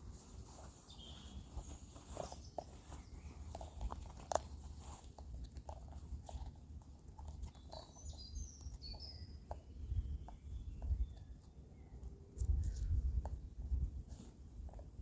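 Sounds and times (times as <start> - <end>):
low wind rumble: 12.4 - 14.1.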